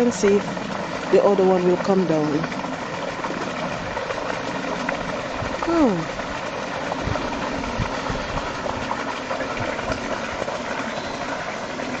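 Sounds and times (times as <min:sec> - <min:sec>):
continuous rumbling hiss: 0:00.0 - 0:12.0.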